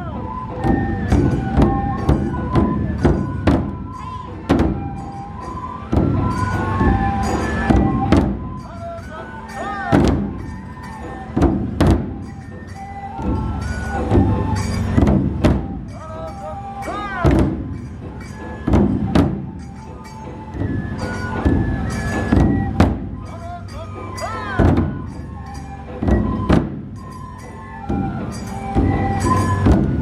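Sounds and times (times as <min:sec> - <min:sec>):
bamboo flute melody: 0:00.0 - 0:30.0
heavy drum strikes: 0:00.6 - 0:08.6, 0:09.9 - 0:16.1, 0:17.2 - 0:23.3, 0:24.6 - 0:25.3.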